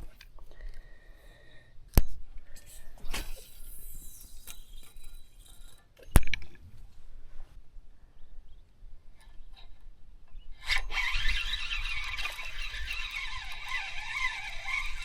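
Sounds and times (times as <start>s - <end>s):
line swishing off reel: 3.0s - 5.8s, 10.6s - 15.0s.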